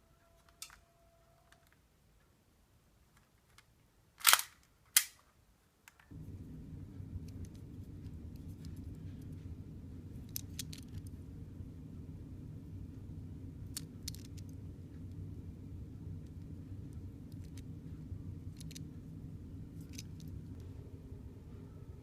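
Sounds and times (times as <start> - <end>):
toy pistol plastic snaps: 4.2 - 5.3
steady low rumble: 6.1 - 22.0.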